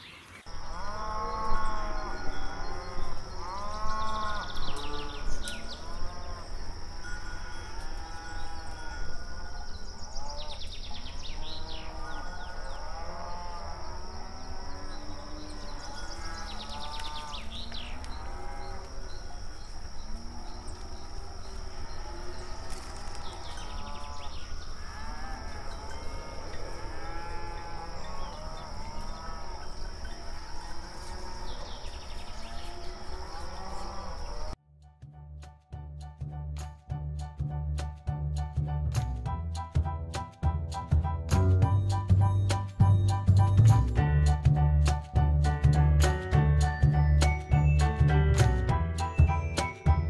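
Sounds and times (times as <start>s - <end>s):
cattle mooing: 0.6s - 19.4s, 20.2s - 34.4s.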